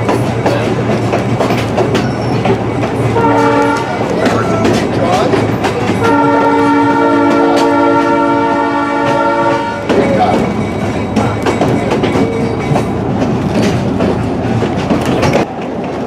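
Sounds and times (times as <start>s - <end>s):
train wheels clicking over rail joints: 0.0s - 16.0s
train horn blasts: 3.1s - 4.8s, 5.9s - 10.4s.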